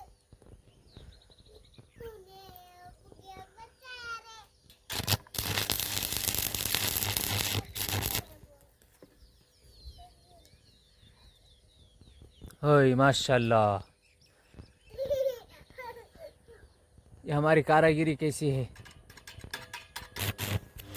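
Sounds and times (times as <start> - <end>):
welding arc crackling: 4.9 - 8.4, 20.0 - 20.9.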